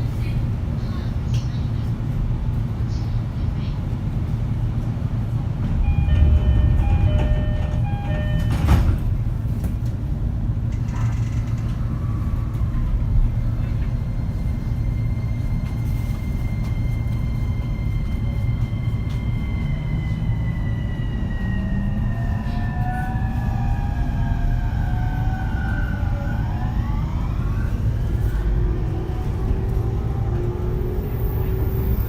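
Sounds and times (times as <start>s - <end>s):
train running rumble: 0.0s - 32.0s
train inverter whine: 4.1s - 32.0s
train doors closing thud: 5.7s - 9.8s
electronic door chime: 5.9s - 8.7s.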